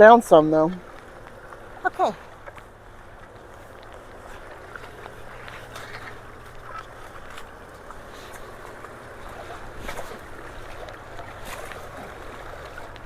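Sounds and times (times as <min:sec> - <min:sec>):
floodwater rushing: 0:00.0 - 0:13.0
small water splashes: 0:00.0 - 0:13.0.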